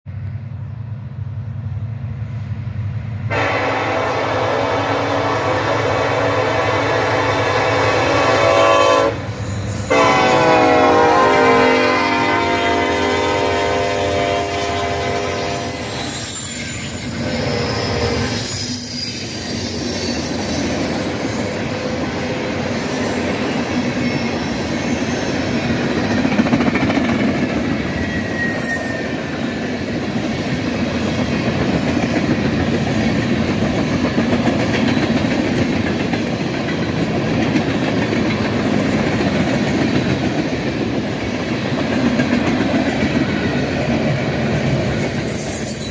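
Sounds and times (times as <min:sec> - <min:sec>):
train air horn: 0:03.3 - 0:16.3, 0:17.2 - 0:18.5
faint wheel squeal: 0:09.2 - 0:09.9, 0:14.5 - 0:21.9, 0:27.7 - 0:30.2, 0:44.1 - 0:45.9
train wheels clacking: 0:14.0 - 0:45.9.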